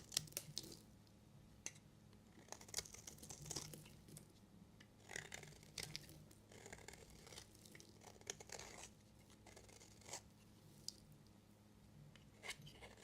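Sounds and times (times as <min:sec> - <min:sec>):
knife scraping soap: 0:02.3 - 0:04.3, 0:05.0 - 0:10.3, 0:12.2 - 0:13.0.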